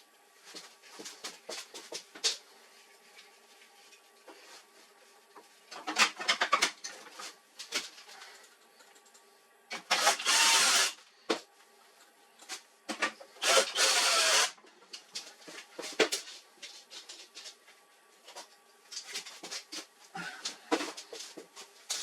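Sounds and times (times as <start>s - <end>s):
small power tool running: 9.9s - 11.0s, 13.4s - 14.6s.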